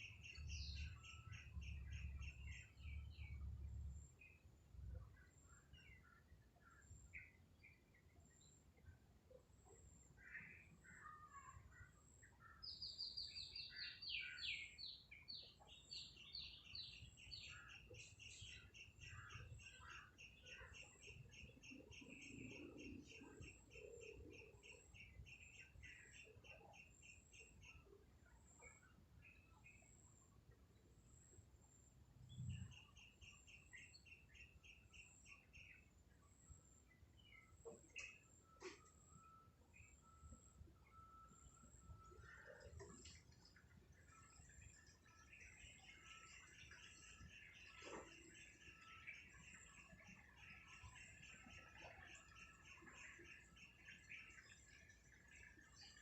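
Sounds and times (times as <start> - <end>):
bird chirping faintly: 0.0 - 56.0
faint bird calls: 37.2 - 54.6.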